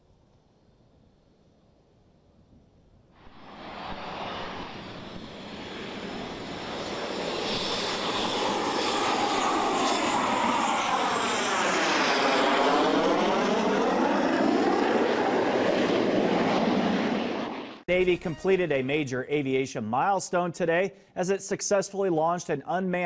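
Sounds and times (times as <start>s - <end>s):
jet aircraft passing low: 3.2s - 18.0s.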